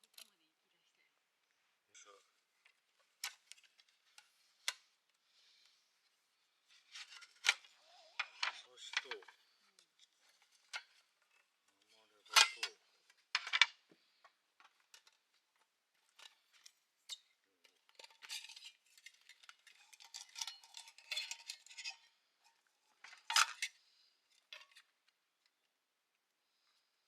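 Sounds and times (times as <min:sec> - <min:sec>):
metal utensils clinking: 0:12.2 - 0:12.8, 0:18.0 - 0:23.8
utensils scraping cookware: 0:18.2 - 0:22.1.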